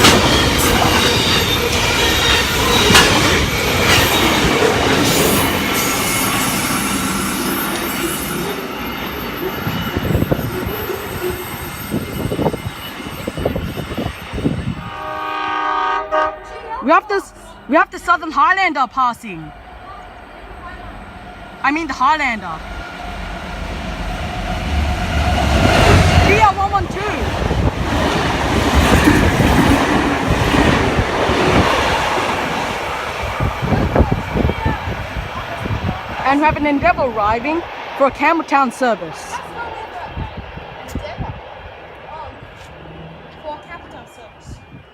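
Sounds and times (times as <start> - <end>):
train wheels clattering over rails: 0.0 - 6.4
wheel squeals and clacks: 0.0 - 14.4
train rumbling on rails: 0.0 - 44.9
train horn chord: 14.8 - 16.8.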